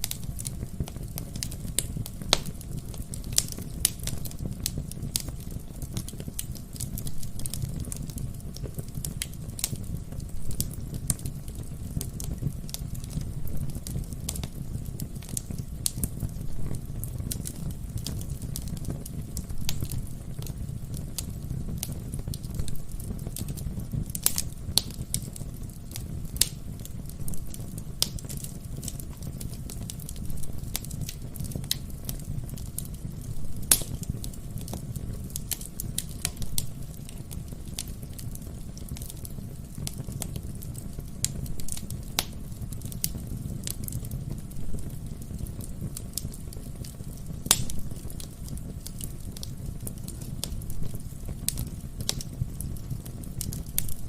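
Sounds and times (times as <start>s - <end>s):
burning logs popping: 0.0s - 54.0s
low rumble of flames: 0.0s - 54.0s.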